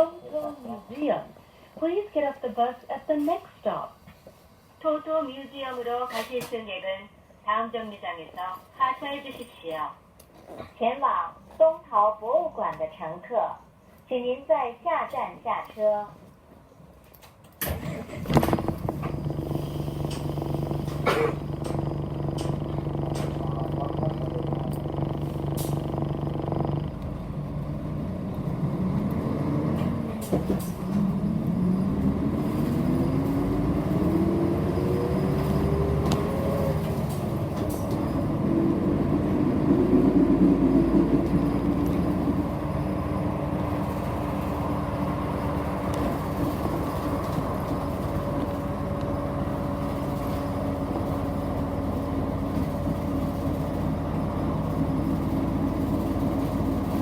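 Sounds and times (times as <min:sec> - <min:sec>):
bus engine accelerating: 0:17.6 - 0:57.0.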